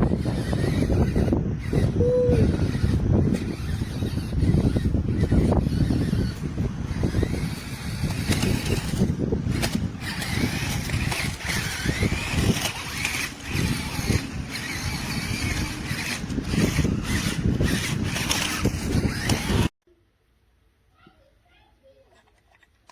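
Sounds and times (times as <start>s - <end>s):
toy truck electric motor whining: 0.0s - 19.7s, 22.1s - 22.9s.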